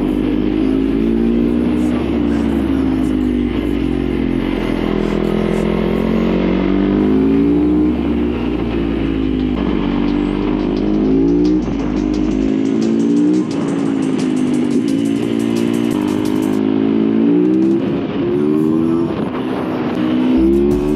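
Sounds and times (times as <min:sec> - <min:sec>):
motorcycle engine accelerating: 0:00.0 - 0:20.9.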